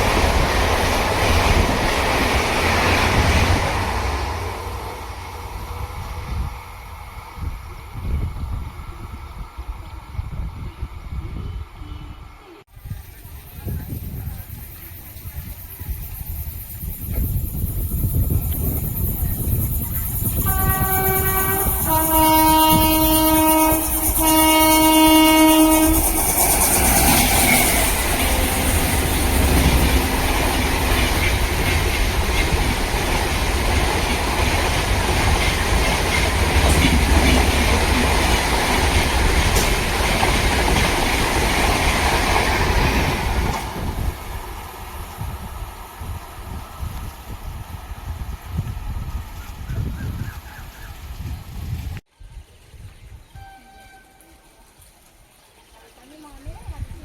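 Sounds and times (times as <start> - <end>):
train wheels on rails: 0.0 - 10.8, 12.7 - 50.5
train horn blasts: 20.4 - 26.4, 27.8 - 31.3, 53.3 - 54.6.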